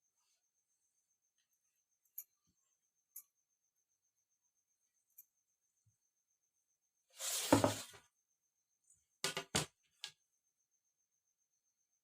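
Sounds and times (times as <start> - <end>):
rustling scrape on cloth: 7.2 - 8.0.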